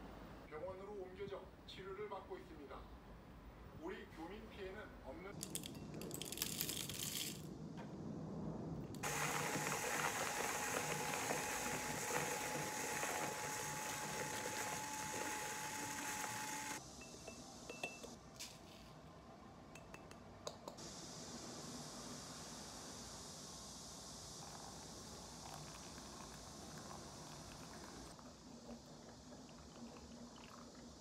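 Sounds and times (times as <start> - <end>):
coffee beans rattling: 5.4 - 7.5, 9.0 - 16.8
electric coffee grinder whine: 9.0 - 16.8.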